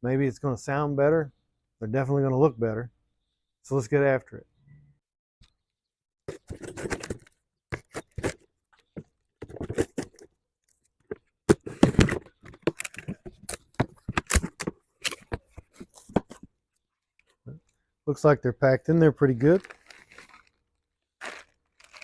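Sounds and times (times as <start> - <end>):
box packing scraping and rustling: 6.3 - 8.4.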